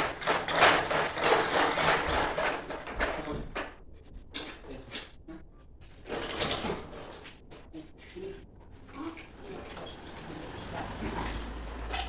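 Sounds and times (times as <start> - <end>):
metal parts scraping rattle: 0.0 - 3.3, 9.1 - 12.0
hand tools clicking and knocking: 0.0 - 3.7.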